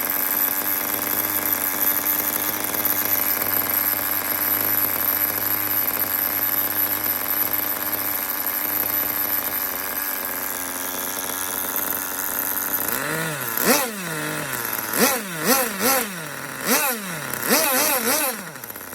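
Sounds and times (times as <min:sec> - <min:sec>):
small model engine running: 0:00.0 - 0:18.9
engine throttle blips: 0:09.2 - 0:18.9.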